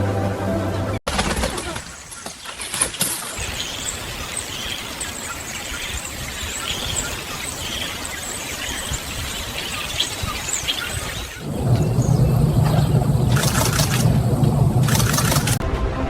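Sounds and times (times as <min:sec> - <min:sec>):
birds chirping: 0:01.4 - 0:15.6
steady rushing noise: 0:03.4 - 0:15.6.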